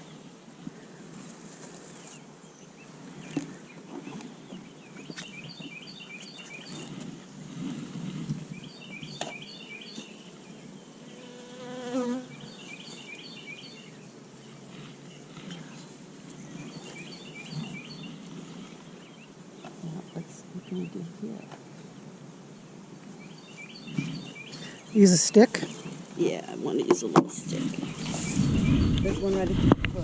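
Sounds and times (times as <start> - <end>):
honeybees buzzing: 0.0 - 30.0
bee buzzing past close: 6.6 - 19.8.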